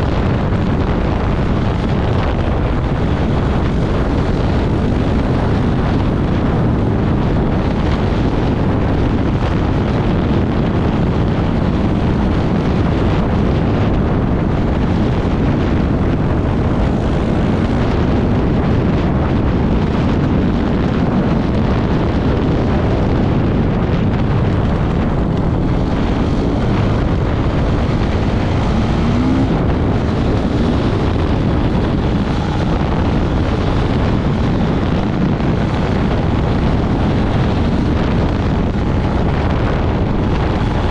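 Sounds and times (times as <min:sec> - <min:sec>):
wind buffeting microphone: 0:00.0 - 0:40.9
motorcycle engine: 0:10.7 - 0:20.2, 0:22.7 - 0:40.9.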